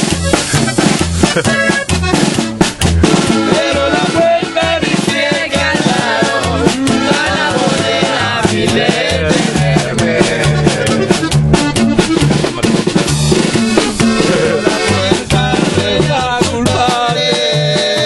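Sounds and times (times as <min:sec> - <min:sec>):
instrumental trio music: 0:00.0 - 0:18.0.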